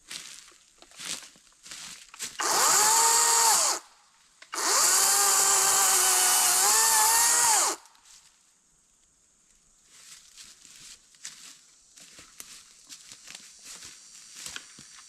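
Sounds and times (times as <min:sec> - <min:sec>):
power tool motor whining: 0:02.4 - 0:03.8, 0:04.5 - 0:07.8.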